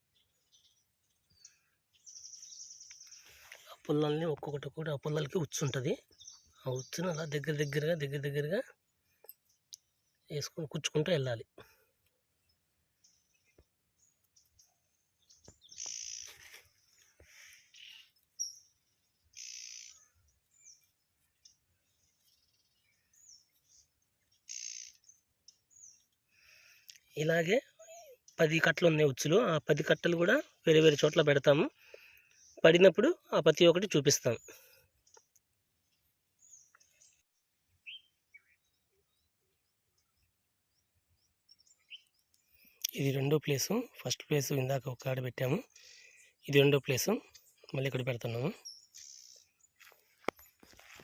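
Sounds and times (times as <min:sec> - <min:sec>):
birds chirping: 0:00.0 - 0:51.0.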